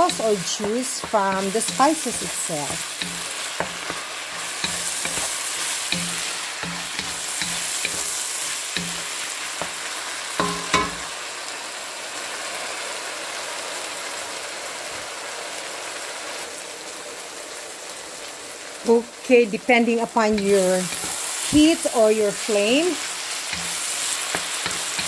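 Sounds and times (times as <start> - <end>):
spatula scraping and knocking pan: 0.0 - 11.2, 20.2 - 25.0
meat sizzling in oil: 0.0 - 25.0.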